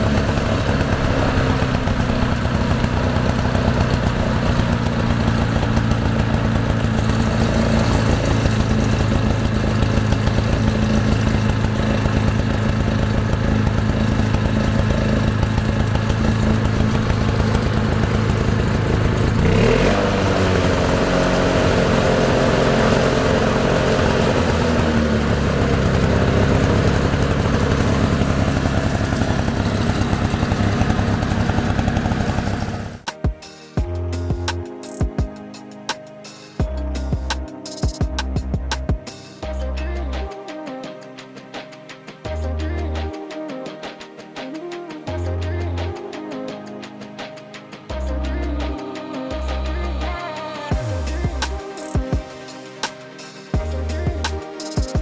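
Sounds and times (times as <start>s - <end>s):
lawn mower engine running: 0.0s - 33.2s, 36.6s - 40.2s, 50.7s - 55.0s.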